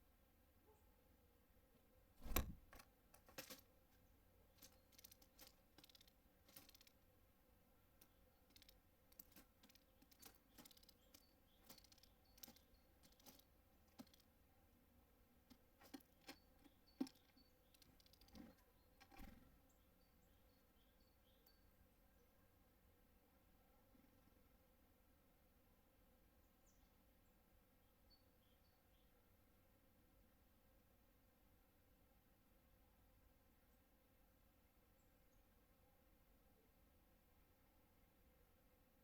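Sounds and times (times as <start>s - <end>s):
beaks tapping on seed feeder: 2.2s - 3.6s, 4.6s - 7.0s, 8.0s - 14.3s, 15.5s - 19.4s.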